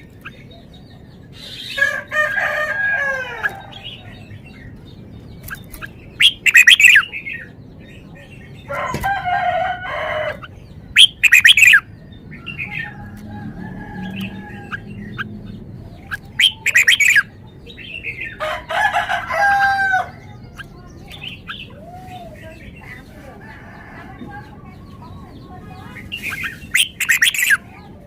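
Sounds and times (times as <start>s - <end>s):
bird singing bright phrases: 0.0s - 28.0s
rooster crowing: 1.8s - 4.3s, 8.7s - 10.5s, 12.4s - 15.2s, 18.4s - 20.3s, 23.3s - 24.4s
soft bird chirps: 3.3s - 9.1s, 9.9s - 18.4s, 20.1s - 28.0s.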